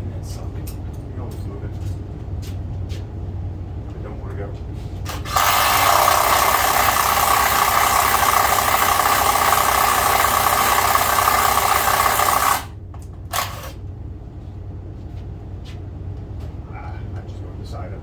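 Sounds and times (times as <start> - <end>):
power drill boring into wood: 5.1 - 12.7, 13.3 - 13.8.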